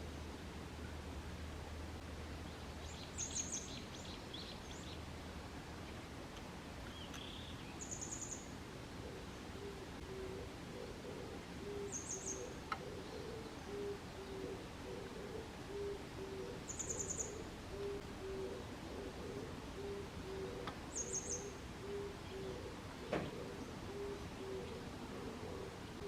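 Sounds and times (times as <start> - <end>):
low hooting call: 9.0 - 26.0.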